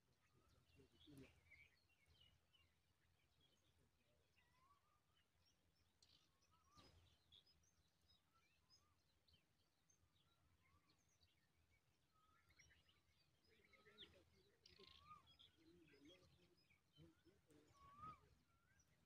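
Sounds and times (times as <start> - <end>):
birds chirping and whistling: 6.1 - 7.8, 12.2 - 19.0.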